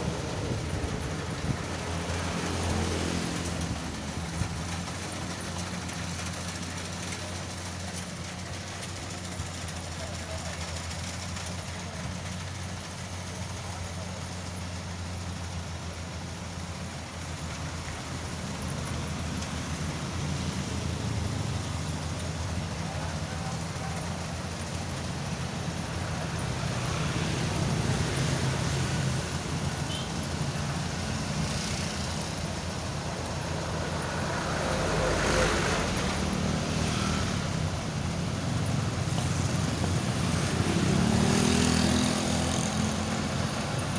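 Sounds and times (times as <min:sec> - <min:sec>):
thresher engine hum: 0:00.0 - 0:43.9
blower rushing noise: 0:24.9 - 0:43.9.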